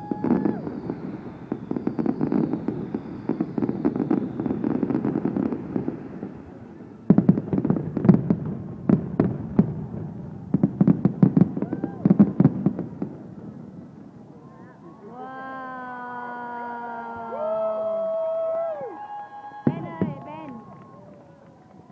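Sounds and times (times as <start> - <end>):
fireworks crackling: 0.0 - 14.2, 18.6 - 21.9
fireworks bangs: 0.0 - 14.4, 17.1 - 21.9.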